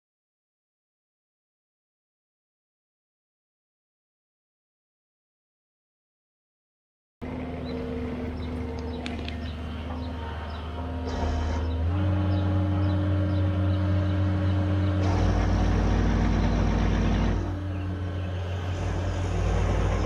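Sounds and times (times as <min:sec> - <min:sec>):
diesel engine under load: 0:07.2 - 0:20.0
loud rough brush cutting noise: 0:07.7 - 0:20.0.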